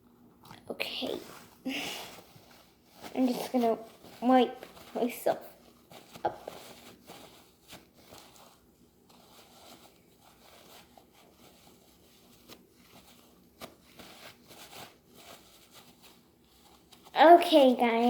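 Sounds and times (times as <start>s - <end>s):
hands rustling and crinkling: 0.0s - 18.0s.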